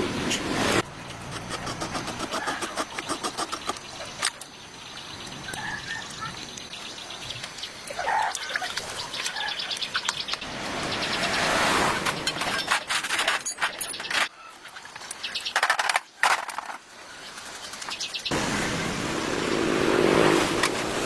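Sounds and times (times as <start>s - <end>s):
birds chirping: 0.8s - 16.2s, 17.0s - 18.4s.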